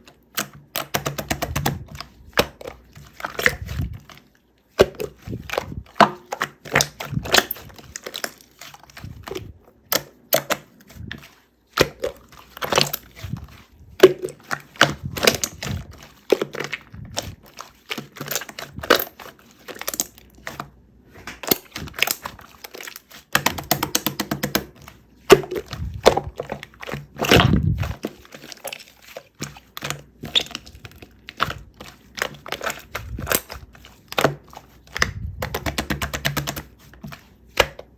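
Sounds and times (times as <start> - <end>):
slime squished by hand: 0.0 - 37.9
slime popping and crackling: 4.8 - 10.6, 11.8 - 20.5, 21.3 - 28.9, 29.5 - 36.7.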